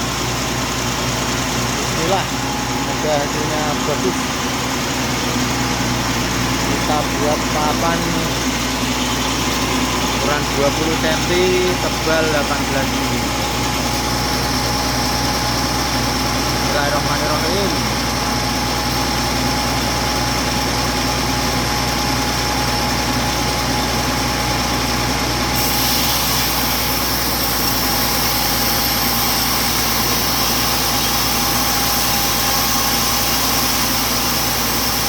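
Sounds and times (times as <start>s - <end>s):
sawmill saw whining: 0.0s - 35.0s
saw blade cutting log hiss: 25.6s - 35.0s.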